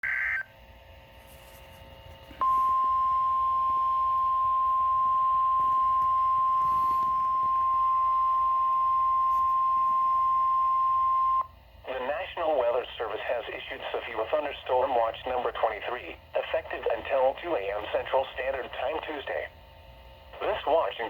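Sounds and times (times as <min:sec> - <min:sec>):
steady warning alarm tone: 0:00.0 - 0:00.6, 0:02.4 - 0:11.6
faint radio hiss: 0:11.8 - 0:21.0.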